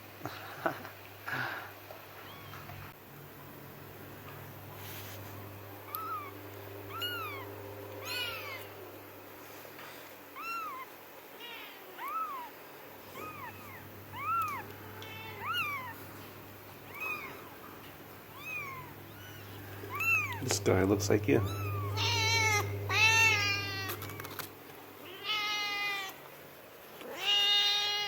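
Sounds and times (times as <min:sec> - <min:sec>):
kitten mewing: 0:05.9 - 0:08.8, 0:10.4 - 0:17.7, 0:18.3 - 0:20.6, 0:21.4 - 0:26.2.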